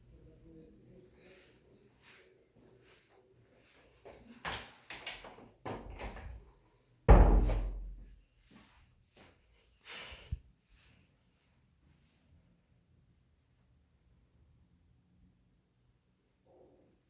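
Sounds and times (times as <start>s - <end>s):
door banging shut: 7.1s - 8.1s.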